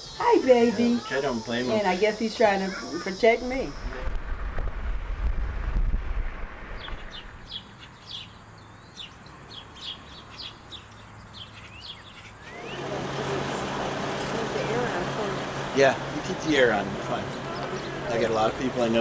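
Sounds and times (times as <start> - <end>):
low rumble: 3.7 - 7.4
small birds chirping: 6.8 - 19.0.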